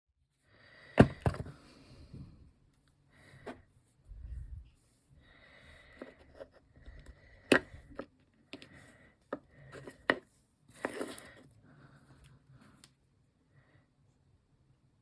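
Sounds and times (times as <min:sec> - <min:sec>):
small objects rustling and scraping: 0:05.8 - 0:11.6.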